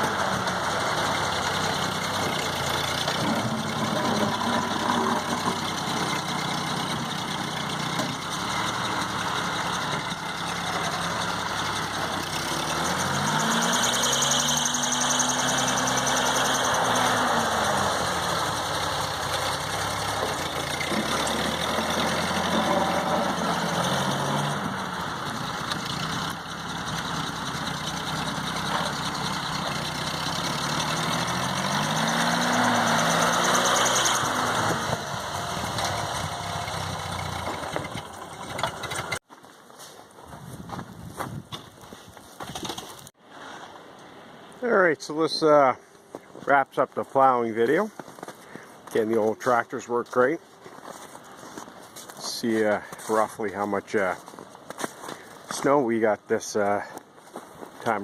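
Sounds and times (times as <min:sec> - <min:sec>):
tractor engine running under load: 0:00.0 - 0:39.3.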